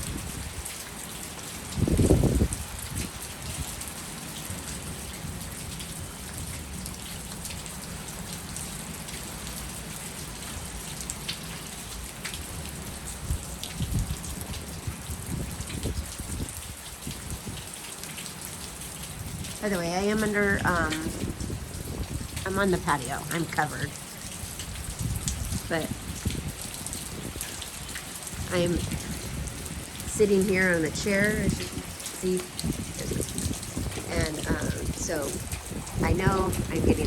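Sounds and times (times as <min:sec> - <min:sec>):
heavy rain falling and splashing: 0:00.0 - 0:37.0
raindrops ticking: 0:00.0 - 0:37.0
low thunder rumbles: 0:01.7 - 0:03.8, 0:20.4 - 0:23.8.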